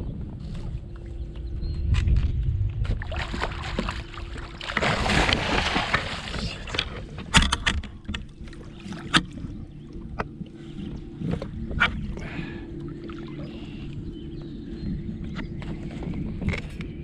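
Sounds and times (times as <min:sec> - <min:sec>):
wind buffeting microphone: 0:00.0 - 0:17.0
water sloshing against kayak: 0:00.3 - 0:17.0
water rushing: 0:03.0 - 0:07.0
gear knocking against hull: 0:04.8 - 0:10.4.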